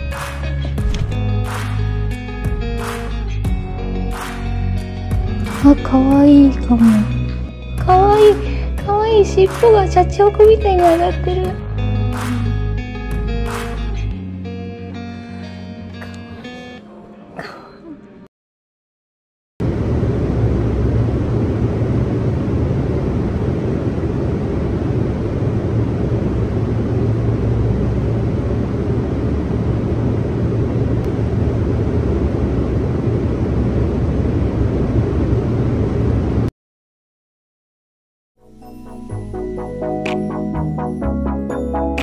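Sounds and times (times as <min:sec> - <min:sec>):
strong wind on microphone: 0:19.6 - 0:36.5.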